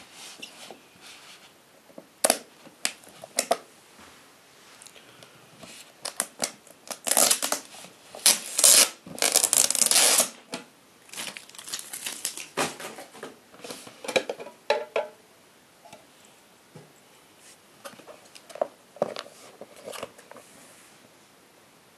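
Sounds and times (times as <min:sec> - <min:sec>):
packaging crinkling and rustling: 0:06.0 - 0:10.4, 0:11.0 - 0:13.8.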